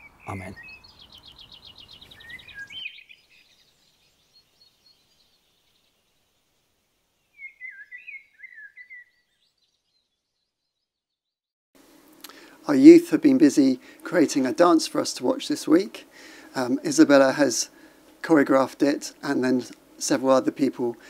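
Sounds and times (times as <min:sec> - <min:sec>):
faint background hiss: 0:00.0 - 0:09.7, 0:11.8 - 0:21.0
small birds chirping: 0:00.0 - 0:11.4.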